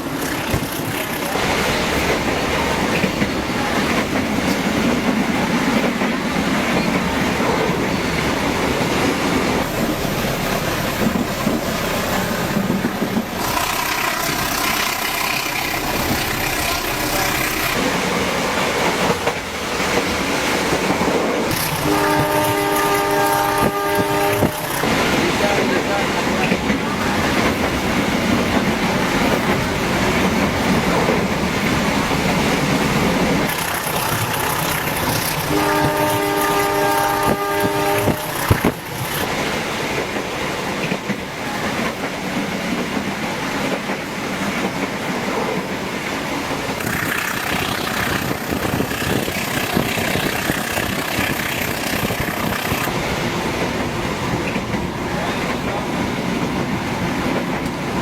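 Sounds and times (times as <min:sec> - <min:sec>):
train rumbling on rails: 0:00.0 - 0:58.0
train horn blast: 0:21.5 - 0:25.0, 0:33.7 - 0:38.9.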